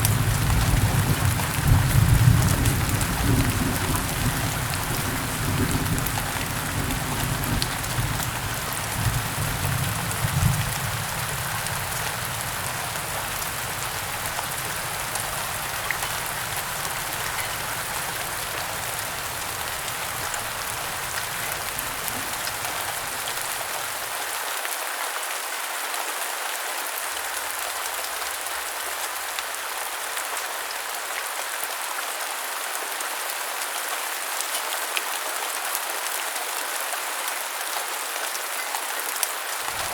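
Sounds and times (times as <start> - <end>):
thunder rumble: 0.0 - 24.1, 39.7 - 39.9
heavy rain: 0.0 - 39.9.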